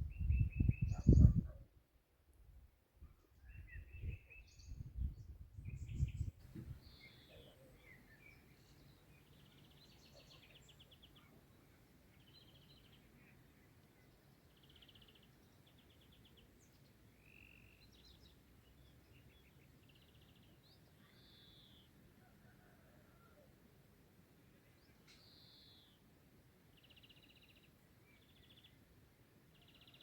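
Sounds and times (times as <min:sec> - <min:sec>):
birds chirping and trilling: 0:00.5 - 0:01.6.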